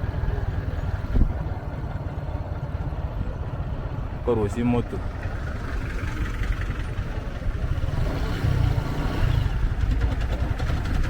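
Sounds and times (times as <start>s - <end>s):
motorcycle engine running: 5.0s - 11.0s.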